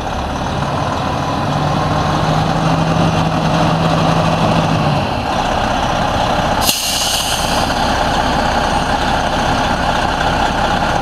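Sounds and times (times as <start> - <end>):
diesel truck engine idling: 0.0 - 11.0
air hiss burst: 6.6 - 7.8.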